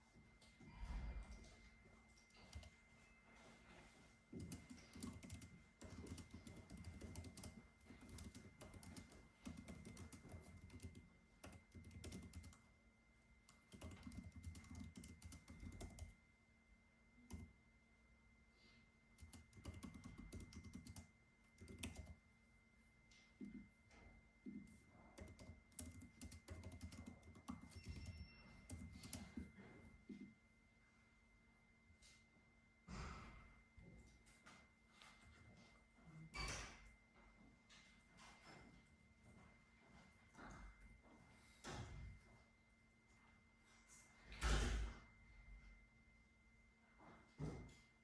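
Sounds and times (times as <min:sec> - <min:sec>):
typing on computer keyboard: 0:02.2 - 0:02.8, 0:04.3 - 0:12.7, 0:13.4 - 0:16.2, 0:17.2 - 0:17.6, 0:19.2 - 0:22.2, 0:25.1 - 0:29.6.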